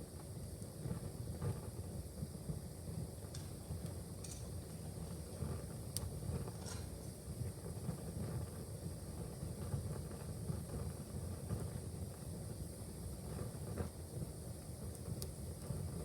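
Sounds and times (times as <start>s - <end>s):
fireplace fire crackling: 14.2s - 16.0s.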